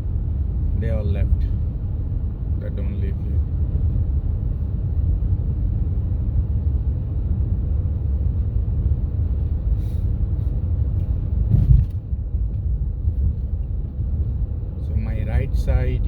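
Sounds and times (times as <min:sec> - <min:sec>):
wind rumbling on microphone: 0:03.2 - 0:15.5.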